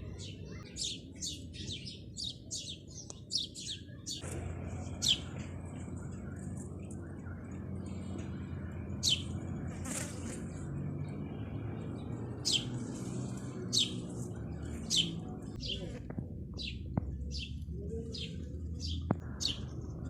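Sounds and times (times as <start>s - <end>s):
bird chirping: 0.0s - 20.0s
steady low rumble: 12.8s - 20.0s.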